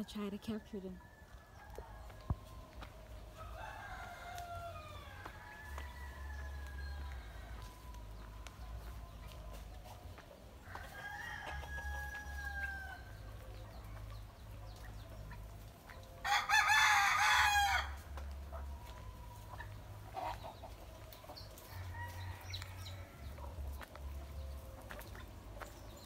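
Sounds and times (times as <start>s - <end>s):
rooster crowing: 3.4s - 7.9s, 16.2s - 18.0s.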